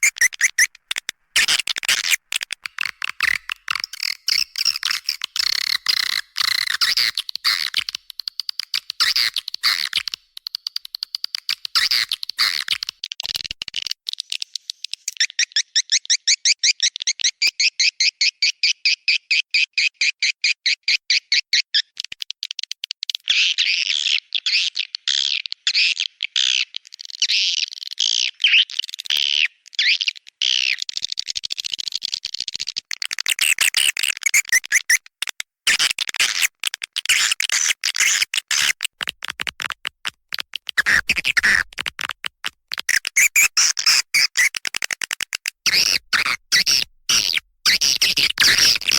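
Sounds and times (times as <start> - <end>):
swiftlet chirping and twittering: 0.0 - 0.8, 42.9 - 44.6.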